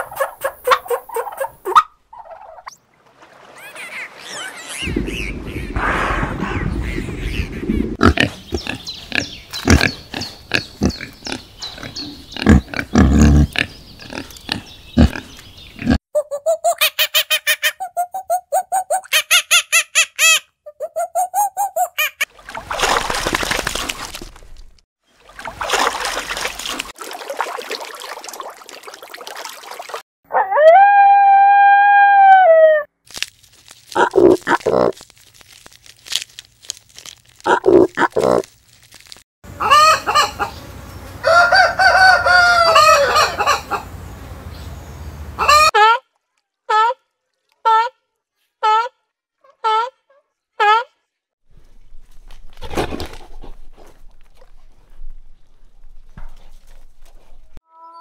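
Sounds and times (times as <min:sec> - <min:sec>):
pig grunting: 0:07.9 - 0:16.0.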